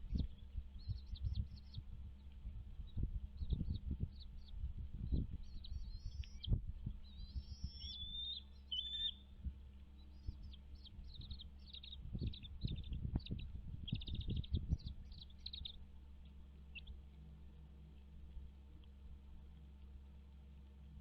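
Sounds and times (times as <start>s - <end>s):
low rumbling thumps: 0.0s - 8.1s, 10.2s - 15.9s
birds chirping: 0.0s - 18.1s
whistled bird notes: 3.4s - 9.3s, 10.0s - 15.8s.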